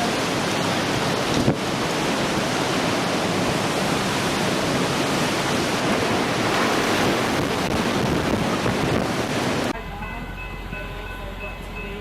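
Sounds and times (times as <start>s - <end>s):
floodwater rushing: 0.0s - 9.8s.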